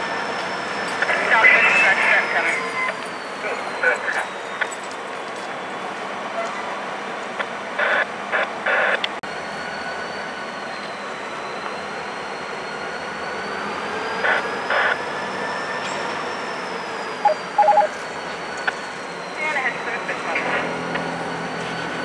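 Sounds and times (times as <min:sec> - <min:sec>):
train running: 0:00.0 - 0:22.0
short electronic beeps: 0:17.2 - 0:18.0.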